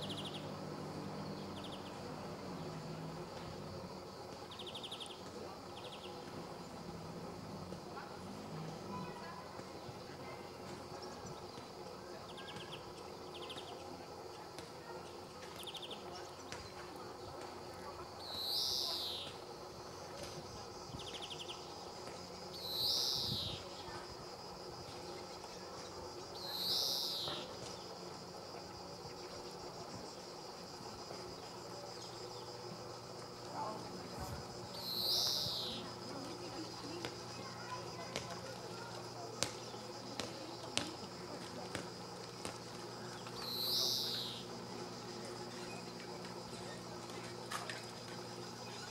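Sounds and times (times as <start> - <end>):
background hiss: 0.0 - 47.2
insects trilling: 0.0 - 48.9
finch trilling: 34.8 - 35.8, 43.4 - 44.4.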